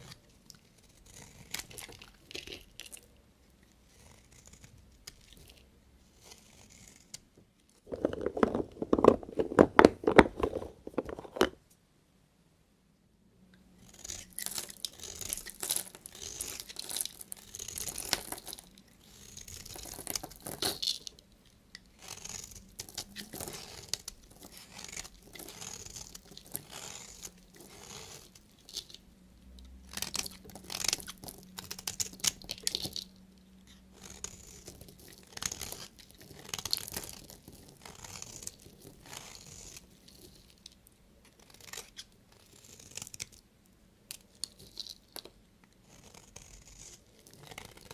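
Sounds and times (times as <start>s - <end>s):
knife cutting soap: 0.0s - 3.1s, 13.8s - 43.4s, 44.1s - 47.9s.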